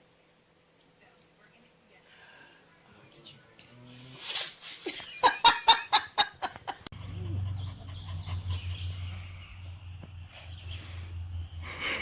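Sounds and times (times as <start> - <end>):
steady low hum: 5.6 - 12.0.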